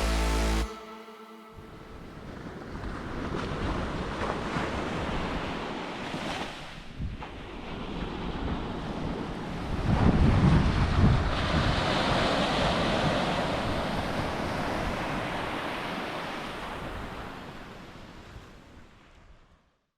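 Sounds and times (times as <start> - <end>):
wind buffeting the microphone: 6.8 - 15.2.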